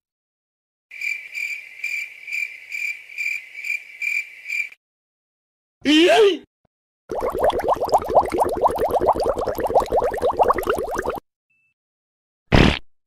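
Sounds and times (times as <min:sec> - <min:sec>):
cricket chirping: 0:00.9 - 0:04.8
shouted voice sound effect: 0:05.8 - 0:06.5.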